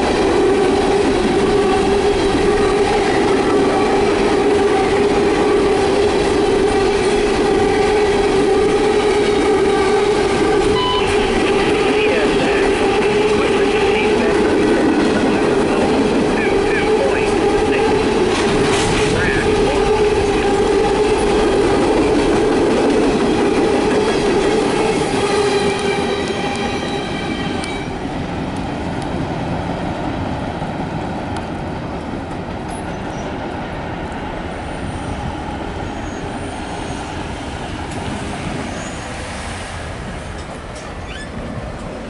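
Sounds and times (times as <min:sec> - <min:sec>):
hopper cars rolling on rails: 0:00.0 - 0:42.0
faint high wheel squeal: 0:35.8 - 0:37.2, 0:41.0 - 0:41.4.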